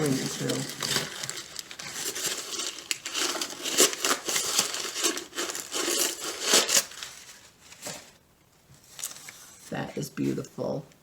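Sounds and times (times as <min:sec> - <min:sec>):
packing material crinkling and tearing: 0:00.0 - 0:08.2.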